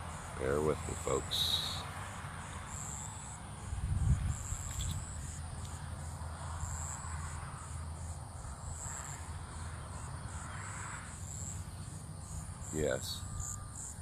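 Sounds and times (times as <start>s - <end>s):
insects chirping: 0.0s - 14.0s
wind rumble on microphone: 3.6s - 10.4s.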